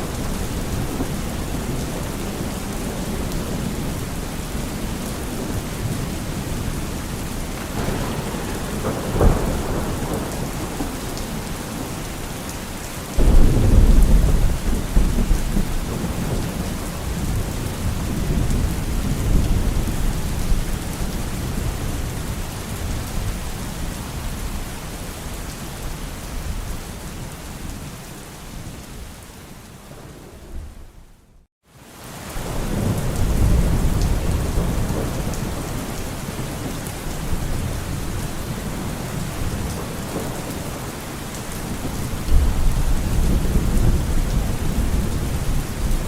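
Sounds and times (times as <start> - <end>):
thunder clap and rumble: 0.0 - 24.6, 32.4 - 46.0
heavy rain: 0.0 - 46.0
sharp thunder crack: 7.6 - 12.0, 13.2 - 16.4.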